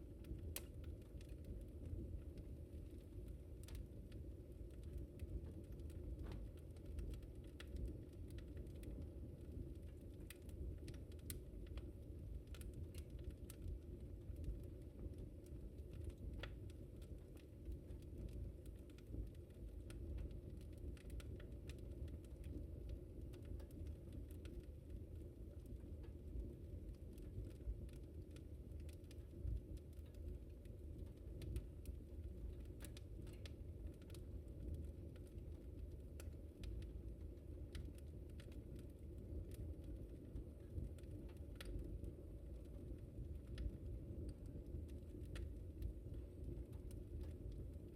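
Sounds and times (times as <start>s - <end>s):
wood fire crackling and popping: 0.0s - 47.9s.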